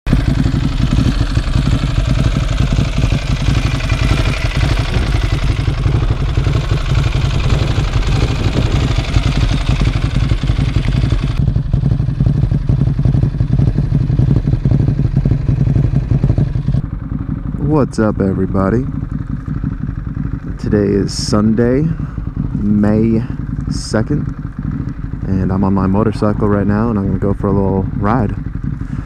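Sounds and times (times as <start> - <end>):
motorcycle engine running: 0.1 - 29.0
wind noise on microphone: 4.7 - 11.4.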